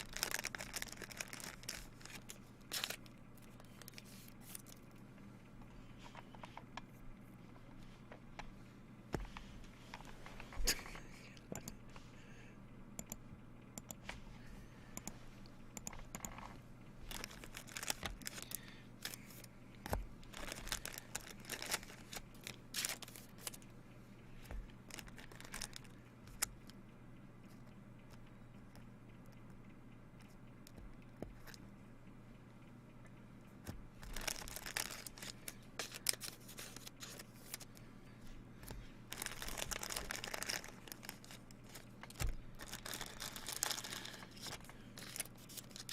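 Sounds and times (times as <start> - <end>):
plastic wrapping tearing and crinkling: 0.0 - 3.1, 17.1 - 19.2, 20.3 - 23.6, 24.9 - 25.9, 34.0 - 37.7, 39.1 - 45.9
cards being handled: 17.1 - 23.6, 34.0 - 37.8.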